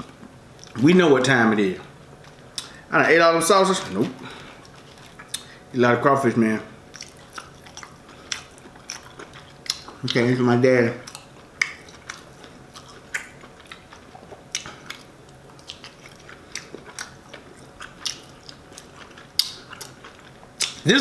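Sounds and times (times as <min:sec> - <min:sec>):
man chewing with wet clicks: 0:00.0 - 0:00.8, 0:02.1 - 0:02.8, 0:04.6 - 0:05.6, 0:06.9 - 0:10.4, 0:11.0 - 0:20.9.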